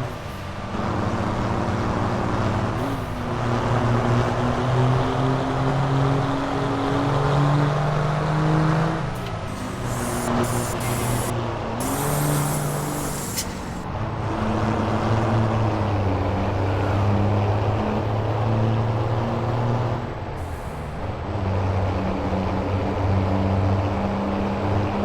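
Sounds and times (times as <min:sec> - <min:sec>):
diesel truck engine droning: 0:00.0 - 0:25.0
high hiss of air: 0:09.5 - 0:13.8.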